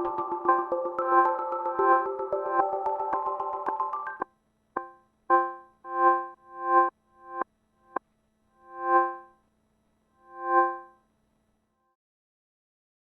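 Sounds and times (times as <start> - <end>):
ambient synthesizer music: 0.0 - 4.2, 4.8 - 7.4.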